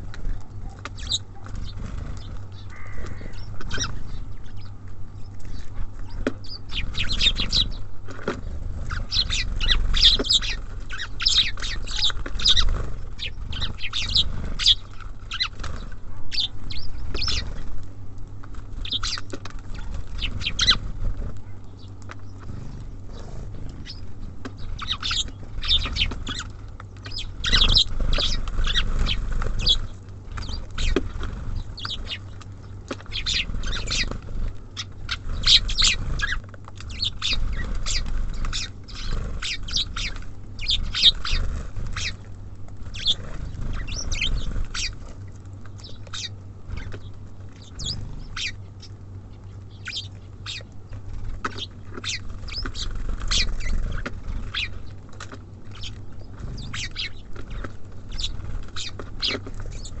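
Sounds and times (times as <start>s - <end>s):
songbirds chirping: 0.0s - 60.0s
steady low hum: 0.0s - 60.0s.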